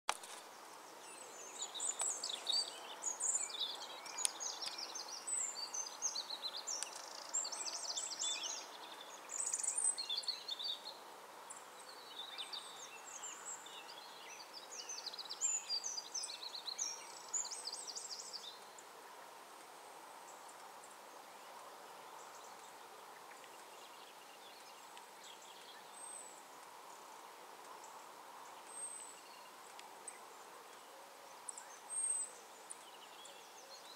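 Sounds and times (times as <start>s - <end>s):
faint background noise: 0.1s - 33.9s
songbirds chirping: 0.1s - 33.9s.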